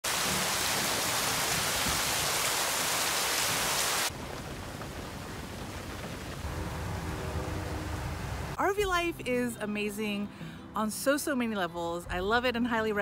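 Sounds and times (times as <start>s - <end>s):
rain hissing: 0.0s - 8.6s
rain patter heard from inside a van: 4.0s - 7.5s.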